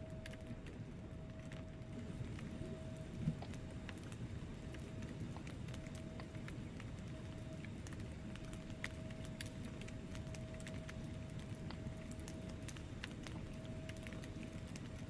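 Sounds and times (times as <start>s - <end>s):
fire flames rumbling: 0.0s - 15.0s
logs crackling and popping: 0.0s - 15.0s.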